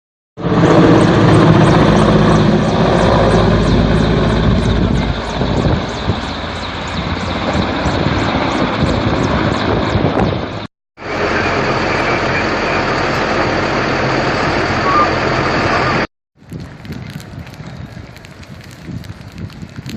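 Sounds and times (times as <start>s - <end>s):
aircraft engine running: 0.4s - 16.1s
quieter engine hum: 11.0s - 19.2s.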